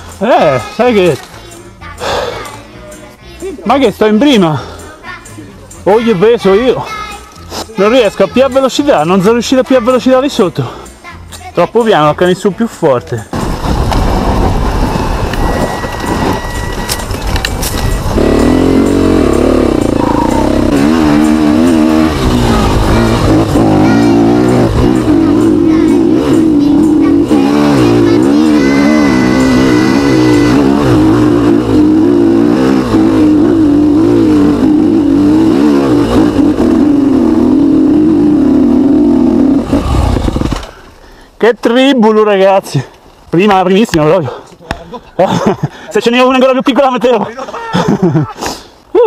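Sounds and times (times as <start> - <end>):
motorcycle engine revving: 14.2 - 40.9.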